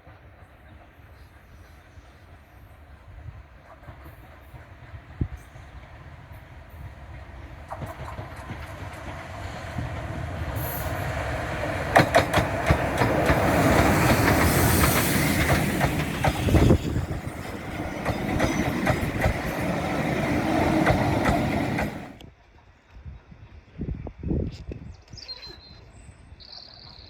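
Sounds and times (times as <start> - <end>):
train wheels clattering over rails: 3.4 - 22.2.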